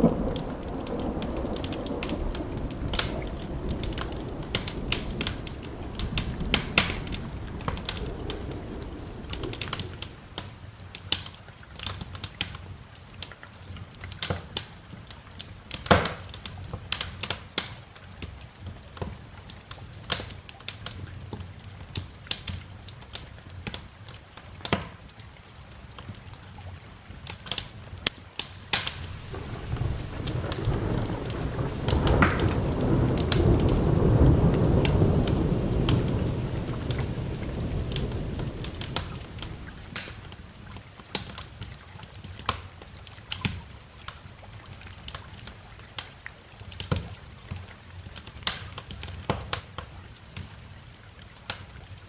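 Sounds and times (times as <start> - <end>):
low rumble: 0.0 - 10.4, 28.9 - 40.6
wood fire crackling: 0.0 - 25.0, 25.7 - 52.0.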